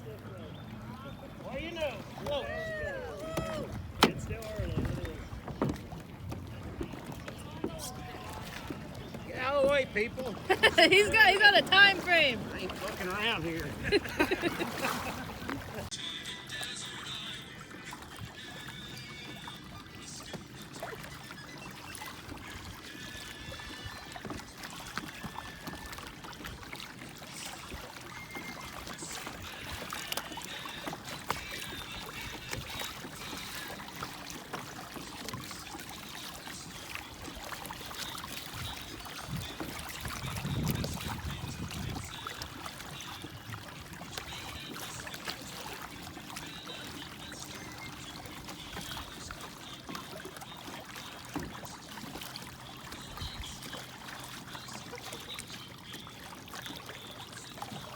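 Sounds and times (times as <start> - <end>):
paddle splashing water: 0.0 - 57.9.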